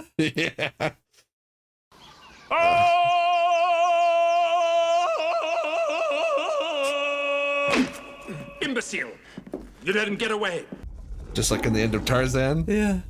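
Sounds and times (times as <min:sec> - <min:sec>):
man yodelling: 0:02.5 - 0:08.6.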